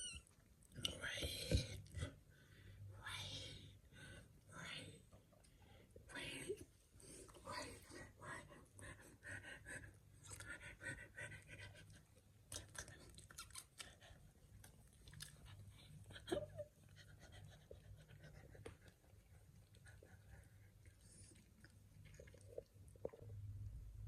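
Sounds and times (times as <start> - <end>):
faint chewing with crunches: 11.9 - 17.0, 17.6 - 23.8.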